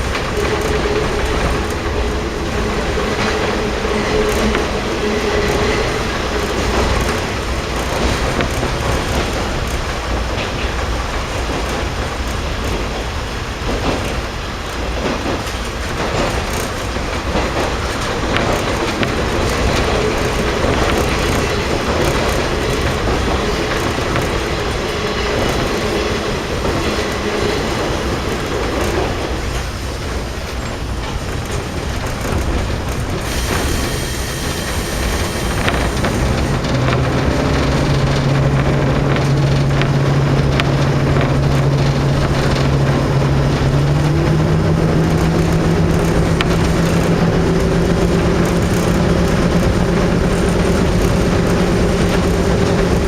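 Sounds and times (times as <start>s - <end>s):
wheels on rails: 0.0s - 53.0s
diesel engine noise: 31.0s - 53.0s.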